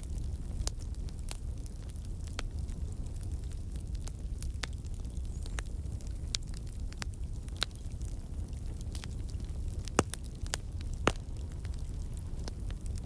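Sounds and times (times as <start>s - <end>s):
campfire rumbling: 0.0s - 13.0s
logs crackling and popping: 0.0s - 13.0s.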